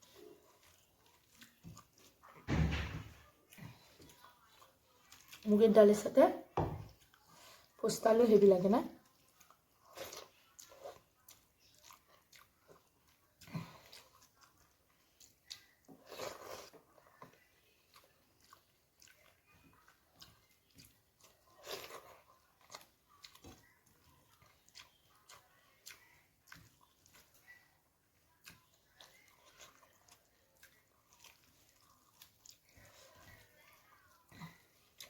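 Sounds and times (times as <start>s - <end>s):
person chewing food: 0.0s - 5.5s, 6.6s - 7.8s, 9.0s - 35.0s.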